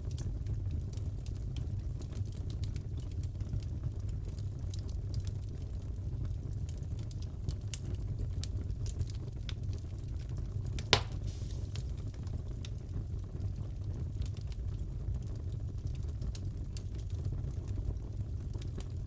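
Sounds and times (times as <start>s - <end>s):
wood fire crackling: 0.0s - 19.0s
loud snap of fire: 10.8s - 12.8s.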